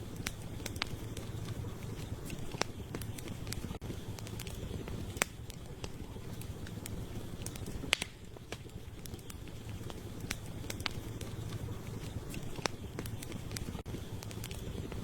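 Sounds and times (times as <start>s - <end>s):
campfire rumble: 0.0s - 15.0s
fire crackles and pops: 0.0s - 15.0s.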